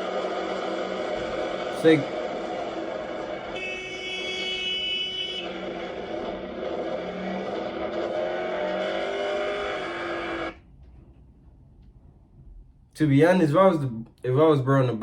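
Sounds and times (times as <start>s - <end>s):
vehicle engines running: 0.0s - 11.6s.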